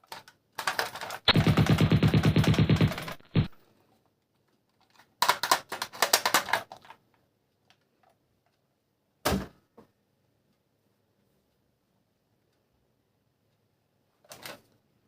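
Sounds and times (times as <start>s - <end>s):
plastic toy parts clicking: 0.0s - 1.3s, 4.7s - 7.0s.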